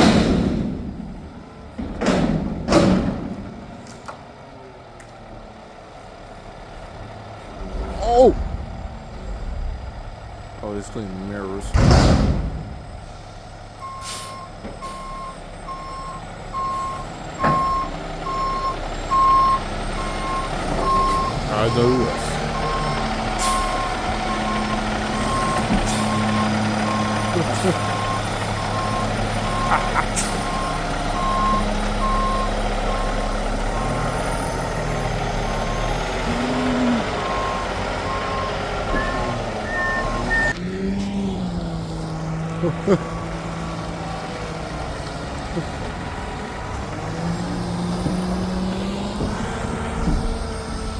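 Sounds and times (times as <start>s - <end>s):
truck engine running: 0.0s - 50.9s
truck reversing alarm beeping: 12.8s - 40.6s, 42.6s - 50.9s.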